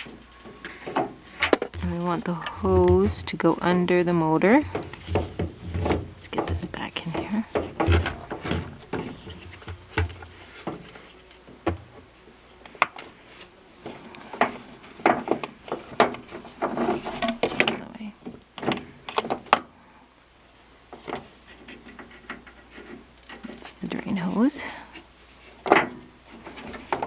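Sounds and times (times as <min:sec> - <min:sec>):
parts clicking and knocking: 0:00.0 - 0:12.0, 0:14.0 - 0:19.7.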